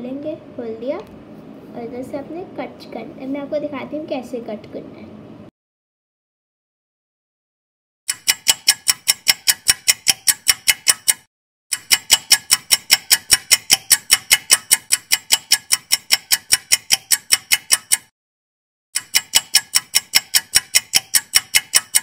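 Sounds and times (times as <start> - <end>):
rapid even ticking: 8.1 - 18.1, 19.0 - 22.0.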